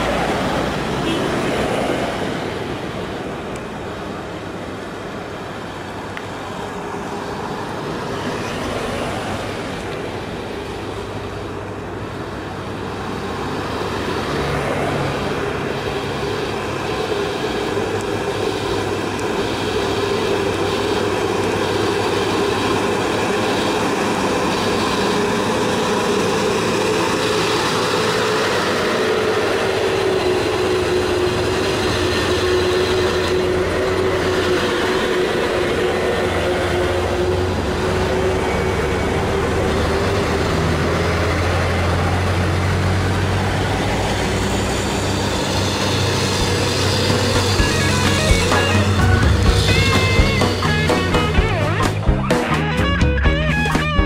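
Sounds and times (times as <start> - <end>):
dump truck engines droning: 0.0 - 54.0
truck deep low rumble: 14.7 - 54.0.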